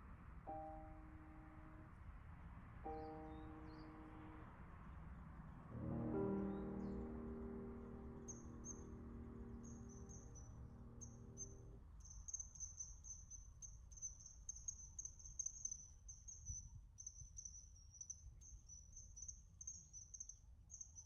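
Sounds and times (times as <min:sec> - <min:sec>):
faint background music: 0:00.0 - 0:13.2.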